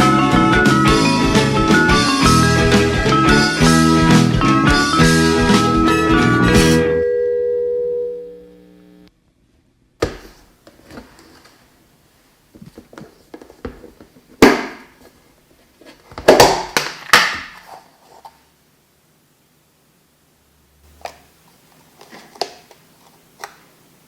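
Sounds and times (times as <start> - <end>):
held music chord: 0.0 - 8.8.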